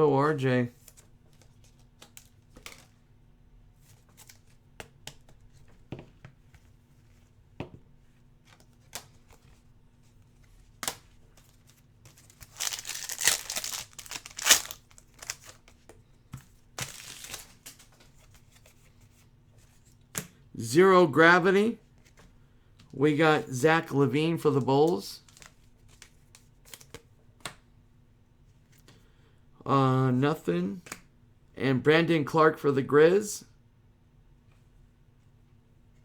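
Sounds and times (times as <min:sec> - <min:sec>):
plastic wrapper tearing and crinkling: 0:12.1 - 0:15.7, 0:16.8 - 0:17.8
cards clicking: 0:12.2 - 0:15.7.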